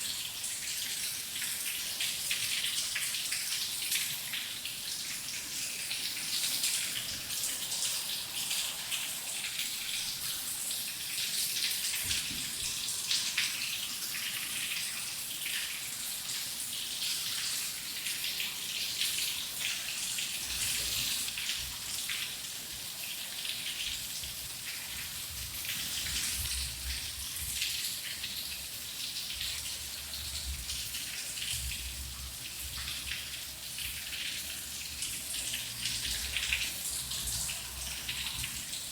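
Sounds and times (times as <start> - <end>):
rain pattering: 29.3 - 38.9.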